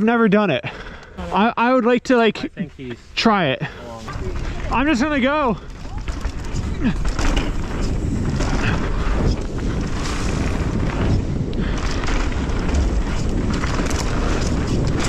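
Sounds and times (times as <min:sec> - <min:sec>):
tyres rolling over dirt and rocks: 0:02.3 - 0:15.0
wind rushing over microphone: 0:02.3 - 0:15.0
bike clattering over rough ground: 0:03.7 - 0:15.0.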